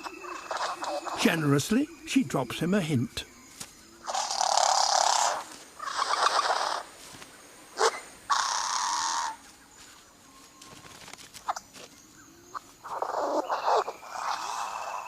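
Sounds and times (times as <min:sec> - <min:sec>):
bird rasping calls: 0:00.0 - 0:02.8, 0:04.0 - 0:07.0, 0:07.8 - 0:09.4, 0:12.5 - 0:15.0.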